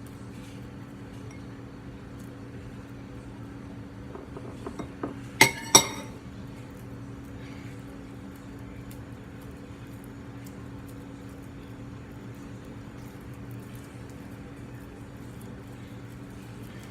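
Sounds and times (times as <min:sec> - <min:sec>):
low steady hum: 0:01.0 - 0:07.7
hard object clinking on dish: 0:04.1 - 0:06.2.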